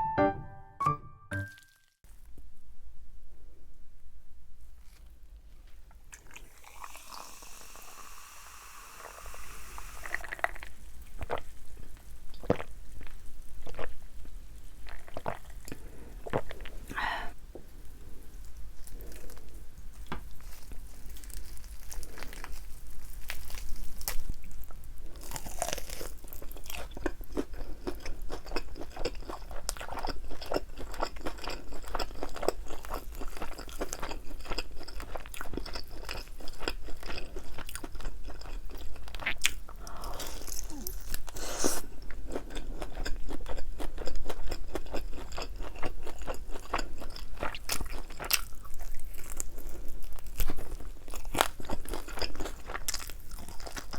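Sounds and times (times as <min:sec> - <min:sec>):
crunchy chicken wings being chewed: 0:10.1 - 0:16.9, 0:18.8 - 0:53.9.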